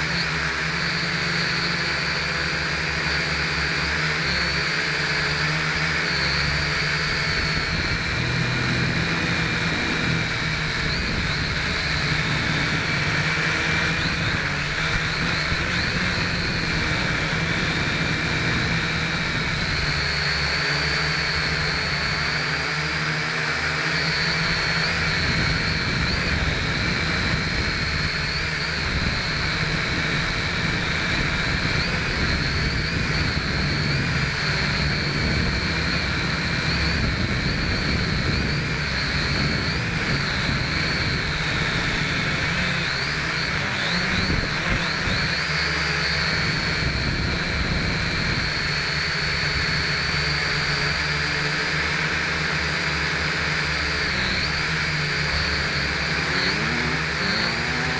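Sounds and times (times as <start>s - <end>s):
quadcopter propellers whining: 0.0s - 57.9s.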